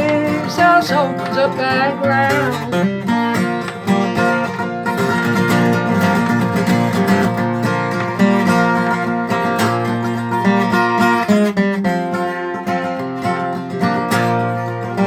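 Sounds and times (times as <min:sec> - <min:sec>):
upbeat country gospel music: 0:00.0 - 0:02.9
strummed acoustic guitar: 0:00.0 - 0:15.0.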